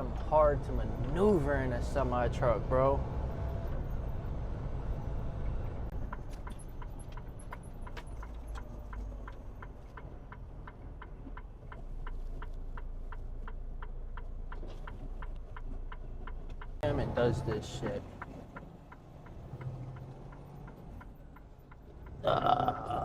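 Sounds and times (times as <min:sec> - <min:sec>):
diesel truck engine hum: 0:00.0 - 0:23.0
turn signal clicker ticking: 0:05.9 - 0:23.0.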